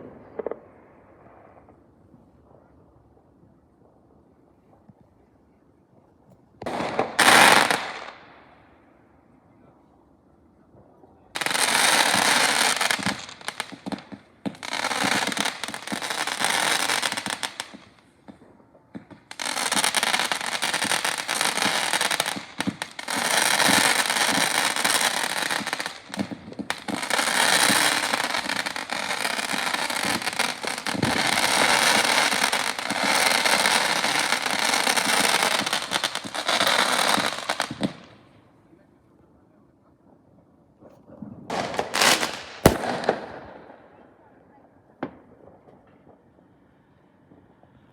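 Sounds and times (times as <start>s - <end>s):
fireworks crackling: 0.0s - 5.0s, 6.0s - 8.5s, 10.8s - 38.6s, 40.8s - 44.0s.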